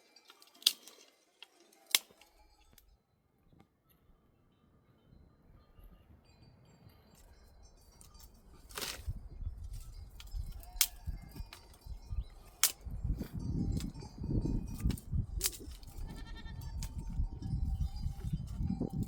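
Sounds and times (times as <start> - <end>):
herd of sheep and goats shuffling: 7.8 - 19.0.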